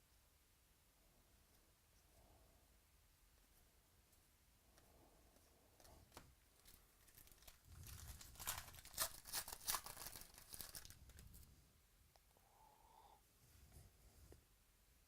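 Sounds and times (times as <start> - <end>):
plastic wrapper crinkling and tearing: 6.1 - 11.4.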